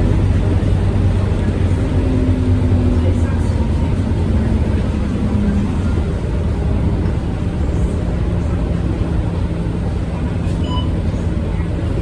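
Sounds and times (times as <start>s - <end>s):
bus diesel engine drone: 0.0s - 12.0s.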